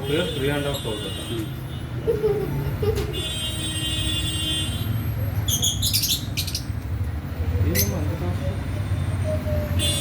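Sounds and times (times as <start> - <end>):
lovebirds chirping: 5.4 - 8.2.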